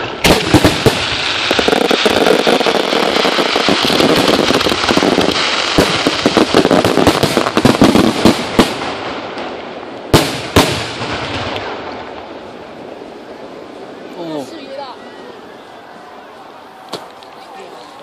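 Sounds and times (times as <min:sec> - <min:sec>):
loud sharp firework bangs: 0:00.0 - 0:12.2
fireworks crackling: 0:00.0 - 0:18.0.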